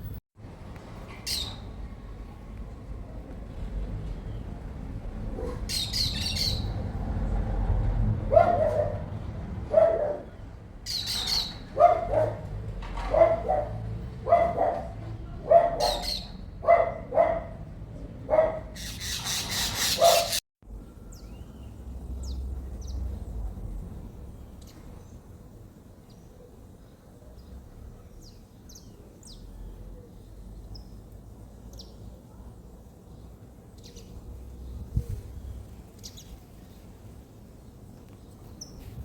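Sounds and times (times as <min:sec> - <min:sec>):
high bird chirping: 0:05.7 - 0:06.8, 0:10.9 - 0:11.7.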